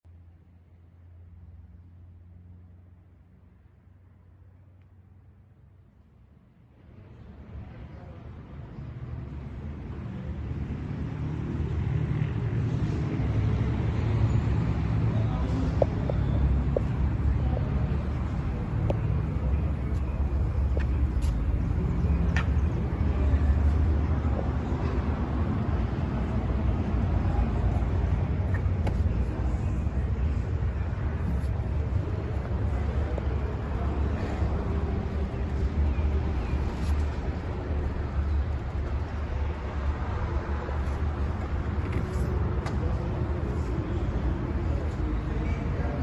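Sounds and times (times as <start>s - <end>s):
diesel truck engine idling: 12.2s - 46.0s.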